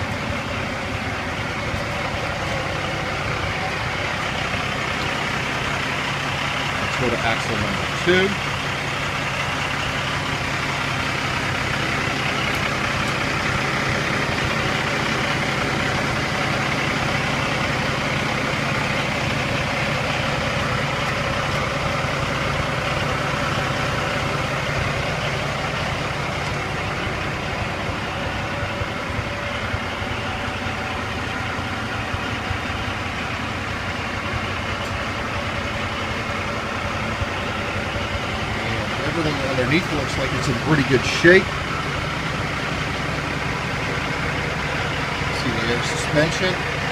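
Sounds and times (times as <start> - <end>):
diesel truck engine idling: 0.0 - 46.9.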